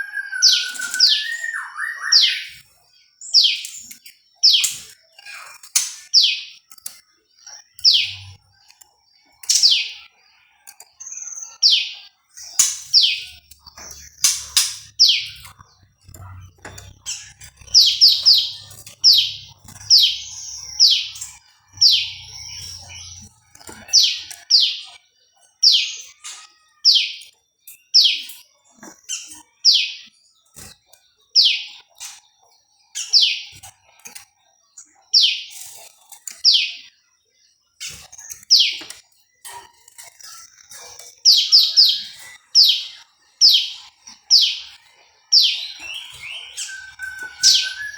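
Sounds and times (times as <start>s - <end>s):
songbird sharp downward chirps: 0.0s - 2.6s, 45.3s - 47.9s.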